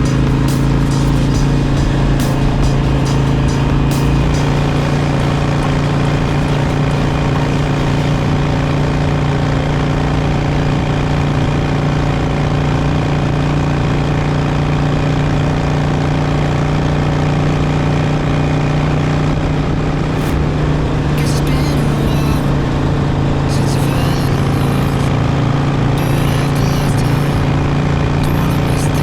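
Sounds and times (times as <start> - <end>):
motorcycle engine running: 0.0 - 21.2.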